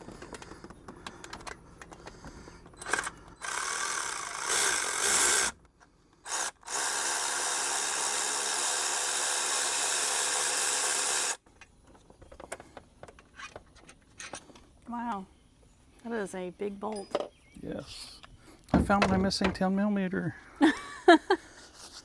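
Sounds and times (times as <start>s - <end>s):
cordless power tool spinning: 2.7s - 5.6s, 6.2s - 11.4s.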